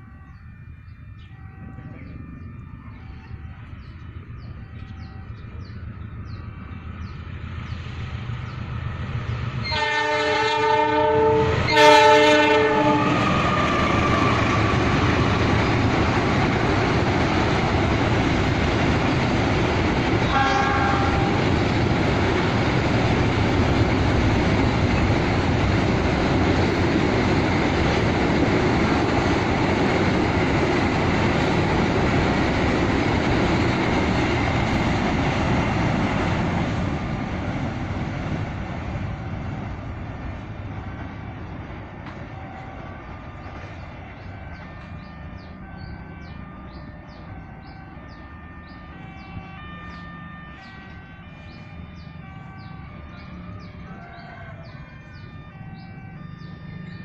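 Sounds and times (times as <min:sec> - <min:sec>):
train rumbling past: 0:00.0 - 0:57.0
train horn blasts: 0:09.6 - 0:15.0, 0:20.1 - 0:21.7, 0:42.2 - 0:57.0.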